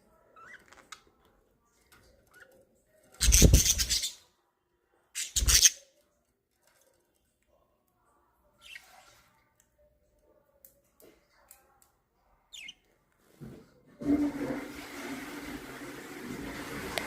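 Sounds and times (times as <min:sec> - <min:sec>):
budgerigars chirping faintly: 0:12.5 - 0:12.8.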